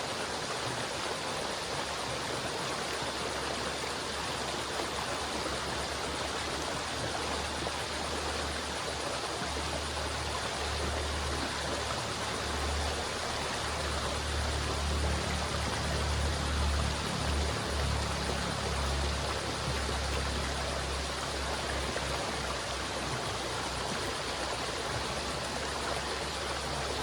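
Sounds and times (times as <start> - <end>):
river water flowing: 0.0 - 27.0.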